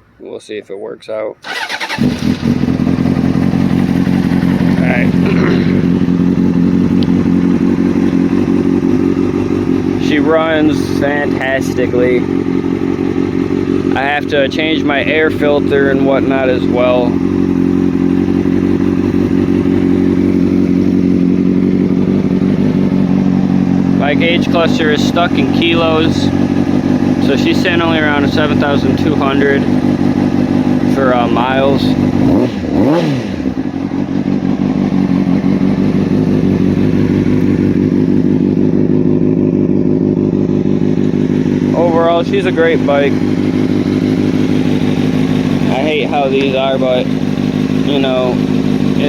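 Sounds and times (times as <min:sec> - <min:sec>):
motorcycle engine idling: 0:01.4 - 0:49.0.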